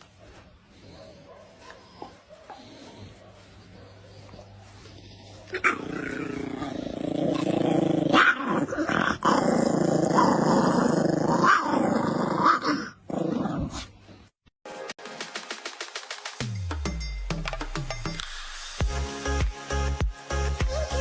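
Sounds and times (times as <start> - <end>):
dog barking: 0.2 - 5.7
dog growling: 4.1 - 14.0.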